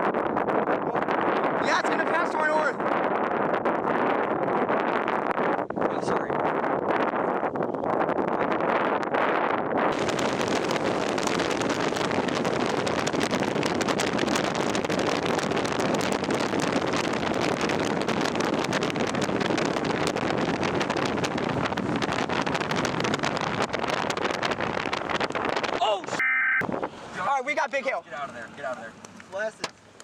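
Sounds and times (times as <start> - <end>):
hail and rain on a car roof: 9.9 - 24.6.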